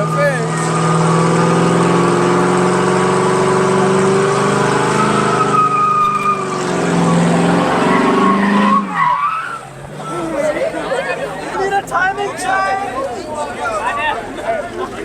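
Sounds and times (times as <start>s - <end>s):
car engine at high revs: 0.0s - 10.8s.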